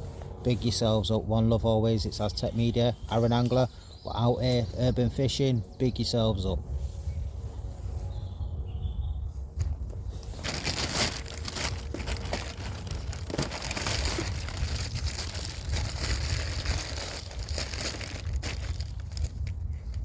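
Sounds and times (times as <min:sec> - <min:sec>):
plastic crinkling and rustling: 0:09.8 - 0:20.0.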